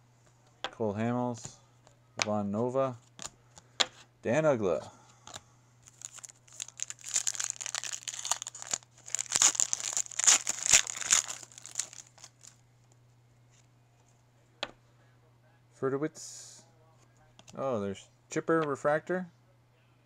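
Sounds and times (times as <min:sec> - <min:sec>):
foil wrapper crinkling and tearing: 0:05.3 - 0:12.6.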